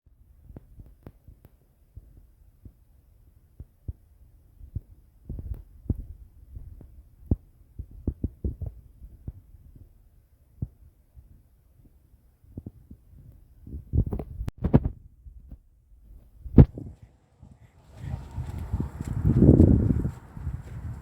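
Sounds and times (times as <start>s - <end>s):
wind buffeting microphone: 3.9s - 11.5s, 12.5s - 21.0s.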